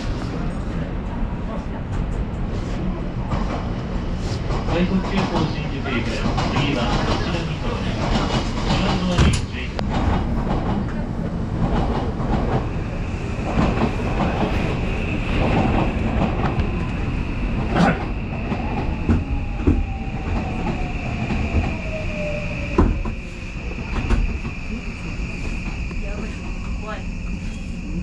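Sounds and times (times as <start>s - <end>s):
train rumble and whine: 0.0s - 28.0s.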